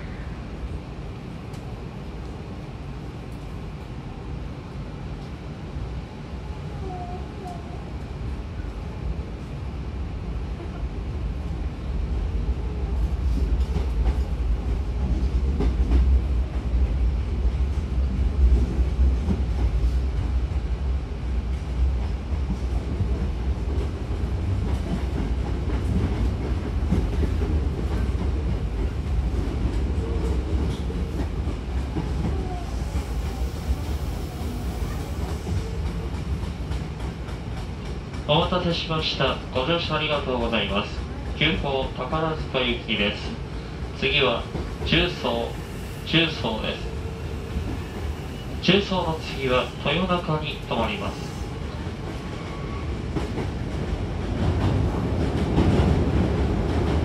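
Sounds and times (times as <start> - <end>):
train cabin rumble: 0.0 - 57.0.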